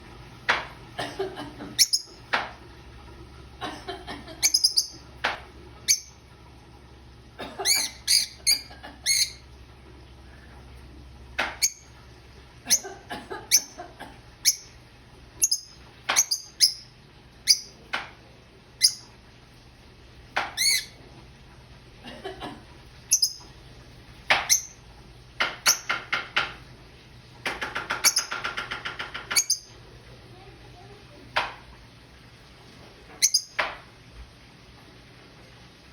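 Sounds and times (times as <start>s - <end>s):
bird chirping and squawking: 1.8s - 2.2s, 4.4s - 5.0s, 5.9s - 6.2s, 7.6s - 9.5s, 11.6s - 11.9s, 14.4s - 14.8s, 15.4s - 16.9s, 17.5s - 17.8s, 18.8s - 19.1s, 20.6s - 21.0s, 23.1s - 23.4s, 24.5s - 24.8s, 29.3s - 29.7s, 33.2s - 33.6s.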